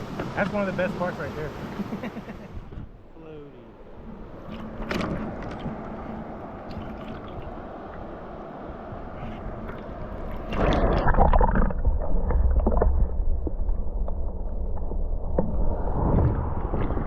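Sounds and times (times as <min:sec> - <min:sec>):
river water rushing and splashing: 0:00.0 - 0:02.4, 0:04.1 - 0:13.0
low rumble on microphone: 0:02.6 - 0:17.0.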